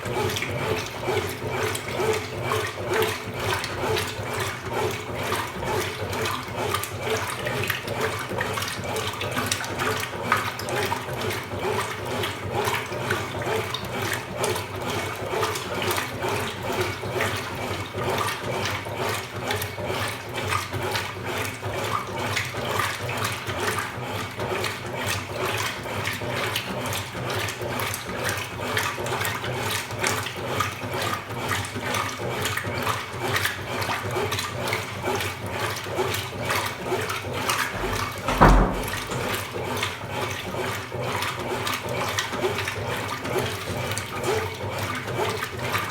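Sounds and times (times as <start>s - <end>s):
water churning in washing machine: 0.0s - 45.9s
washing machine motor hum: 0.1s - 12.0s, 35.6s - 39.9s
thump: 37.8s - 39.4s.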